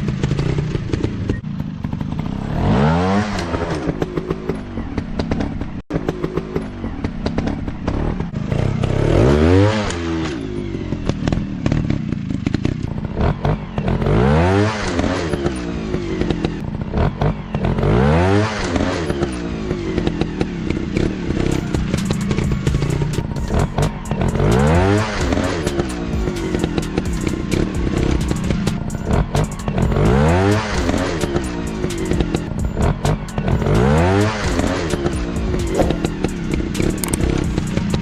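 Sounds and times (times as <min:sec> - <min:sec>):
dirt bike engines revving: 0:00.0 - 0:38.0
knocks and clatter: 0:03.3 - 0:09.0, 0:20.0 - 0:38.0.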